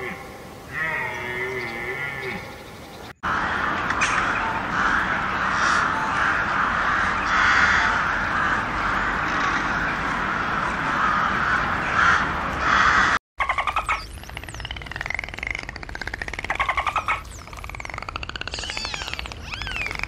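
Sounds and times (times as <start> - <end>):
flock of birds calling: 0.0 - 15.2.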